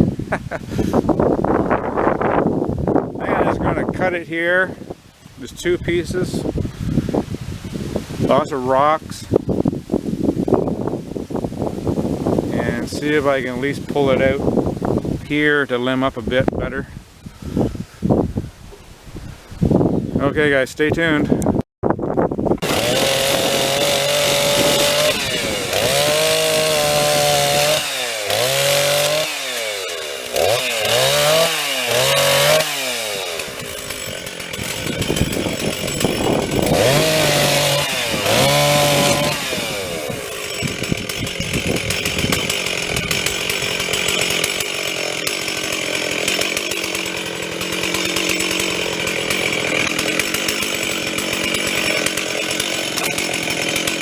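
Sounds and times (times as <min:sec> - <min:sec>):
chainsaw cutting tree: 0:00.0 - 0:04.0, 0:22.6 - 0:54.0.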